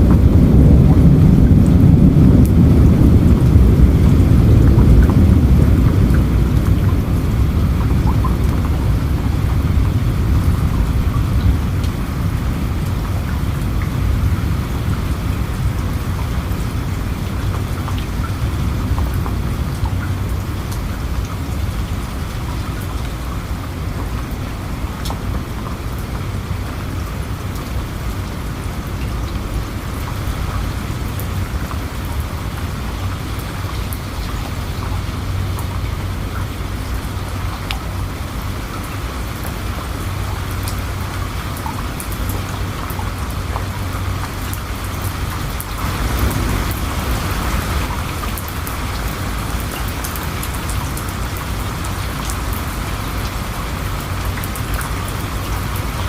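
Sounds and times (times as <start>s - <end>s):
low rumble: 0.0s - 22.5s, 44.9s - 49.8s
heavy rain falling: 0.0s - 56.0s.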